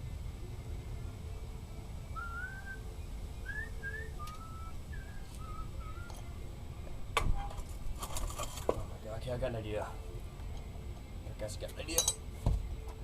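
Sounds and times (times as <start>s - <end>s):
low steady rumble: 0.0s - 13.0s
short whistled notes: 2.1s - 6.2s.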